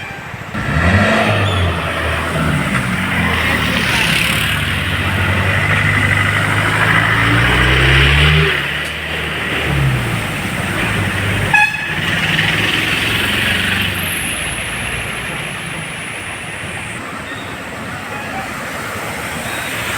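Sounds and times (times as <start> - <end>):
steady hiss of traffic: 0.0 - 19.9
vehicle engine passing: 0.5 - 17.0
short horn toot: 11.4 - 12.2.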